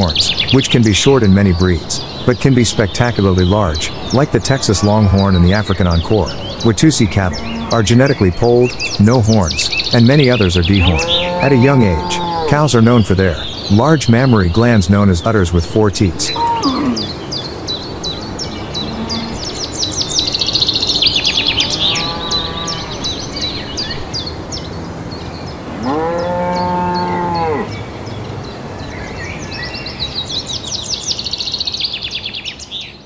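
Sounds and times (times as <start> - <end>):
birds chirping: 0.0 - 33.0
cows mooing: 6.3 - 8.0, 10.8 - 12.7, 15.2 - 17.7, 18.5 - 19.7, 21.4 - 23.6, 25.7 - 27.7.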